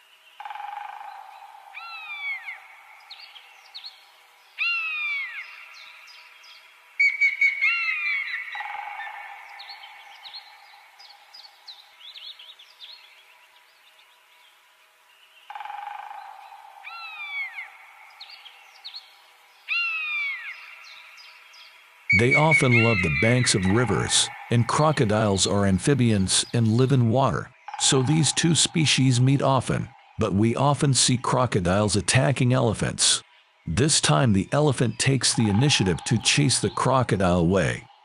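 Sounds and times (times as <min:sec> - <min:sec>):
downward-sliding whistled bird calls: 0:22.1 - 0:24.5
steady high hum: 0:22.1 - 0:37.8.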